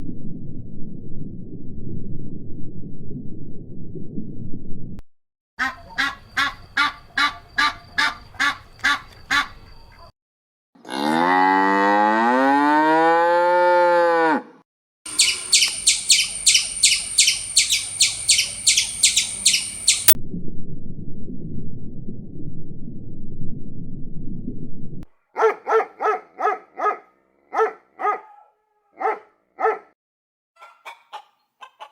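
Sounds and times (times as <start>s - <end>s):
cow mooing: 10.8s - 14.6s
high-pitched chirps: 15.1s - 20.2s
short calls: 15.1s - 20.2s.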